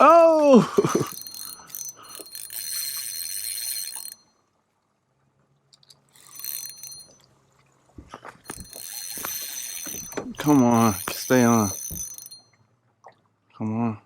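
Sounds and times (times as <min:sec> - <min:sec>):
fishing reel drag buzzing: 0:00.8 - 0:04.4, 0:05.8 - 0:07.2, 0:08.5 - 0:12.5
fishing reel clicks: 0:01.1 - 0:04.3, 0:05.7 - 0:07.2, 0:08.5 - 0:12.4.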